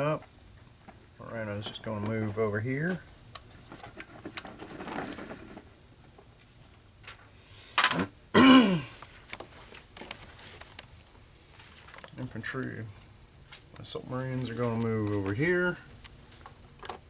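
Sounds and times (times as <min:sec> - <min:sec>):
person clearing throat: 0:07.9 - 0:09.0.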